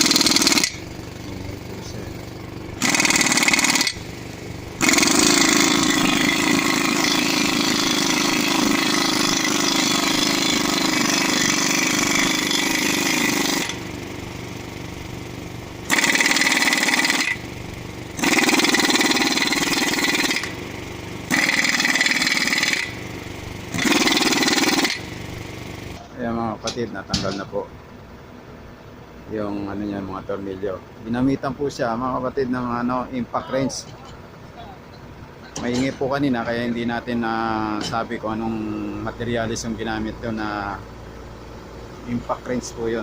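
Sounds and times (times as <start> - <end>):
impact wrench hammering: 0.0 - 0.9, 2.8 - 4.2, 4.8 - 13.9, 15.9 - 17.4, 18.2 - 25.2.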